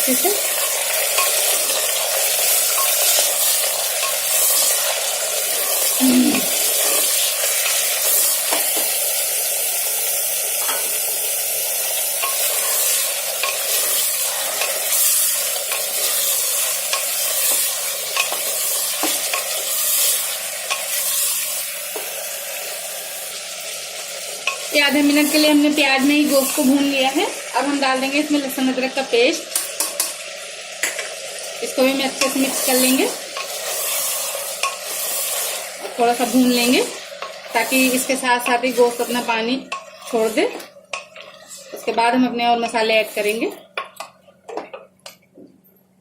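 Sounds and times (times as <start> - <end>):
meat sizzling in oil: 0.0 - 43.5
spoon scraping a pot: 0.5 - 8.9, 12.2 - 21.4, 32.2 - 42.0.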